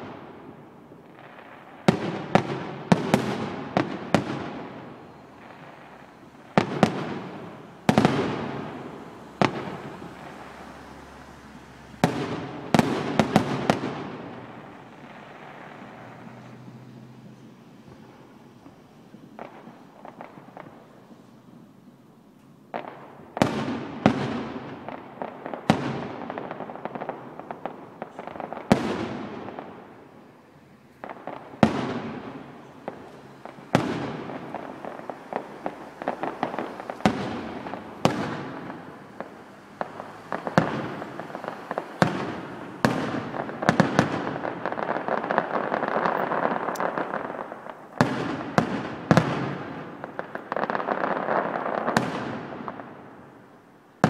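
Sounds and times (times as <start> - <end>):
fireworks bangs with echo: 0.0 - 54.0
fireworks crackling: 0.0 - 54.0.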